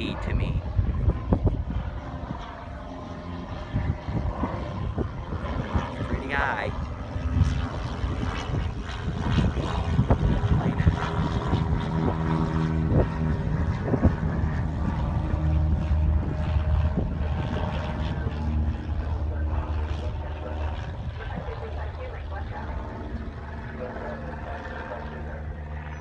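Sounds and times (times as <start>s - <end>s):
wind buffeting microphone: 0.0s - 25.9s
propeller plane engine droning: 0.0s - 26.0s.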